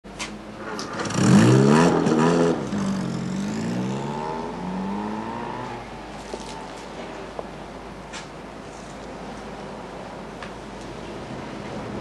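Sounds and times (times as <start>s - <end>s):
car engine accelerating: 0.6s - 6.6s.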